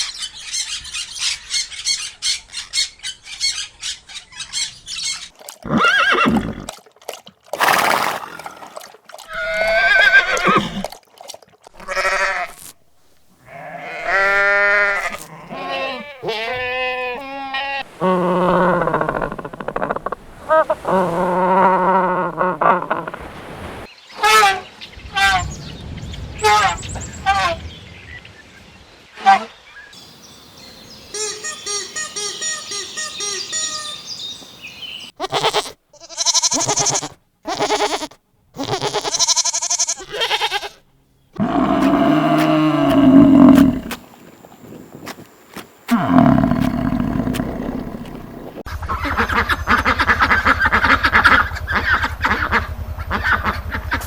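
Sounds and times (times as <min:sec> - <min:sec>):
animals bleating: 0:09.3 - 0:10.9, 0:11.8 - 0:12.8, 0:13.4 - 0:23.2, 0:35.2 - 0:40.8, 0:41.4 - 0:44.0, 0:45.9 - 0:48.6
tiger roaring: 0:17.9 - 0:23.2, 0:41.4 - 0:44.0, 0:45.9 - 0:48.6
birds chirping: 0:41.1 - 0:45.0, 0:45.7 - 0:48.6.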